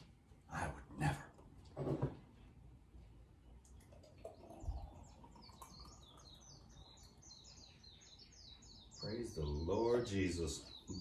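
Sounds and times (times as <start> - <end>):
bird chirping: 3.4 - 11.0.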